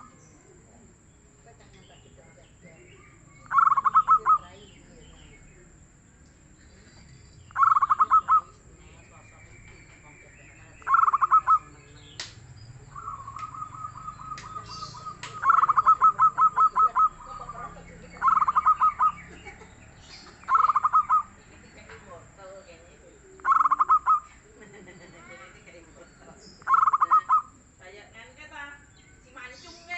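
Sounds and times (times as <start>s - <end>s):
dove cooing: 3.0s - 4.6s, 7.5s - 9.2s, 10.8s - 11.9s, 12.9s - 19.7s, 20.3s - 21.4s, 23.4s - 24.4s, 26.6s - 27.6s.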